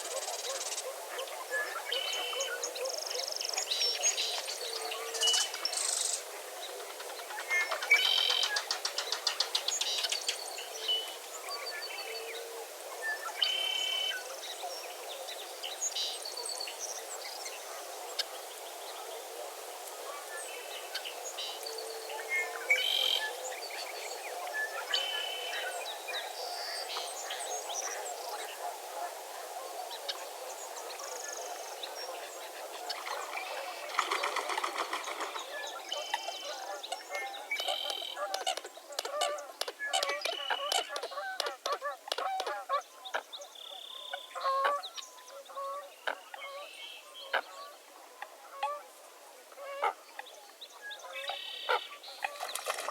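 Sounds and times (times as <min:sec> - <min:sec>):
birds chirping and singing: 0:31.1 - 0:41.5
fast rattling bird trill: 0:33.1 - 0:35.5.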